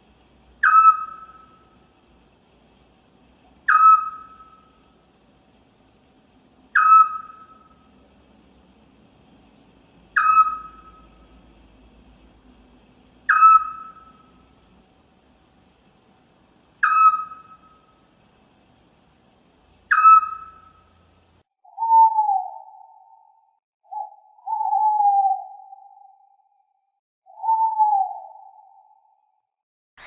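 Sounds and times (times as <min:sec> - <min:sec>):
owl short sharp calls: 0:00.6 - 0:01.7, 0:03.7 - 0:04.7, 0:06.8 - 0:07.8, 0:10.2 - 0:11.1, 0:13.3 - 0:14.3, 0:16.8 - 0:17.8, 0:19.9 - 0:20.8
owl wavering hoots: 0:00.6 - 0:01.9, 0:03.5 - 0:05.0, 0:06.7 - 0:08.0, 0:10.1 - 0:11.3, 0:13.2 - 0:14.5, 0:16.8 - 0:18.0, 0:19.9 - 0:21.0, 0:21.6 - 0:26.5, 0:27.3 - 0:29.3.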